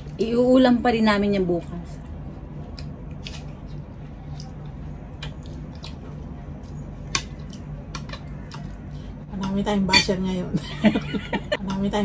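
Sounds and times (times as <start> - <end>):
steady low hum: 0.0 - 12.0
wet chewing mouth noises: 2.6 - 9.0.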